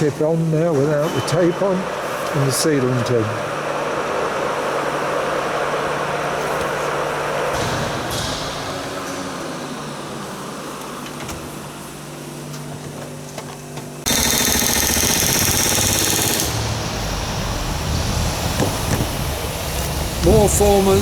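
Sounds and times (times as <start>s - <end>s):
workshop hum: 0.0s - 21.0s
pneumatic tool hammering: 14.0s - 17.0s.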